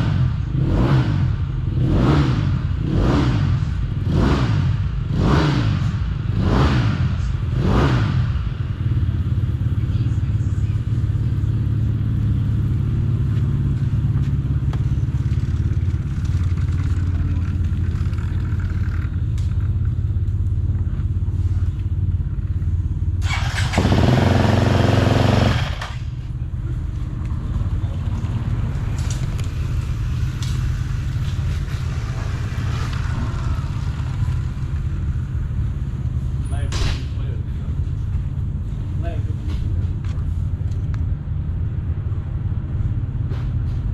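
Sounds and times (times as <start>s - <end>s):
motocross bike engine revving: 0.0s - 8.5s, 23.2s - 26.2s, 27.4s - 35.5s.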